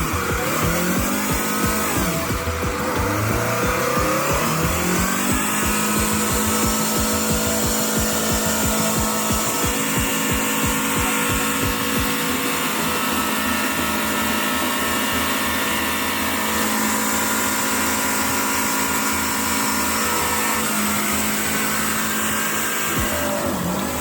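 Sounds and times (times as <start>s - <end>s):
motor running under load: 0.0s - 24.0s.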